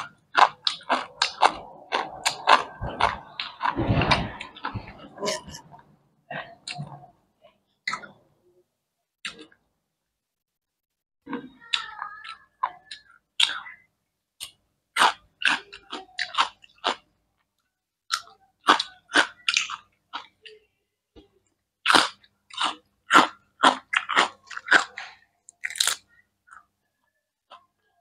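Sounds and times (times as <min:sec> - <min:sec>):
crunchy chewing of cucumber: 0:00.0 - 0:05.6, 0:15.0 - 0:17.0, 0:21.8 - 0:26.6.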